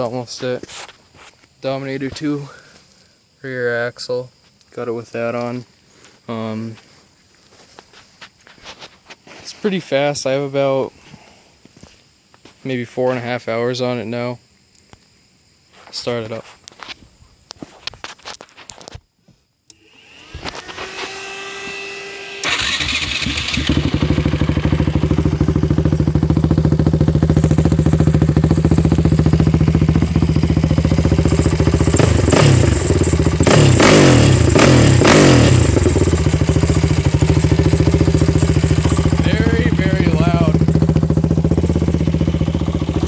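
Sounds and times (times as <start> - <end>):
engine revs: 19.7 - 43.0
engine cranking: 20.3 - 24.1
engine idling loudly: 20.7 - 43.0.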